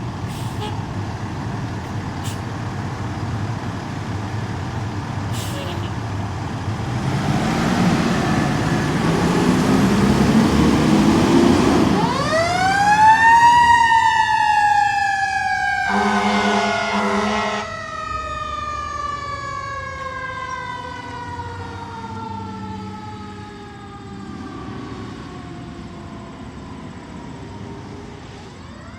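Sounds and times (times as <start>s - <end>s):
diesel engine running: 0.0s - 17.8s
air horn blast: 0.3s - 0.8s, 5.4s - 6.0s, 15.9s - 17.7s.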